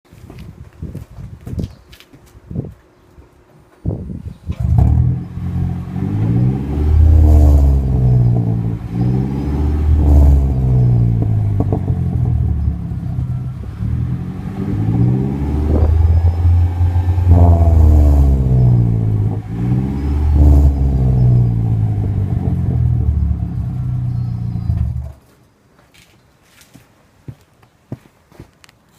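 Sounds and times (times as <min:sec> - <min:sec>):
car engine revving: 0:04.5 - 0:25.2.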